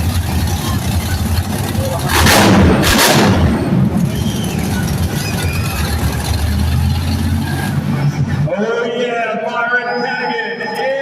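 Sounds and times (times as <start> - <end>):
monster truck engine rumbling: 0.0 - 10.8
loud bangs: 1.5 - 8.5.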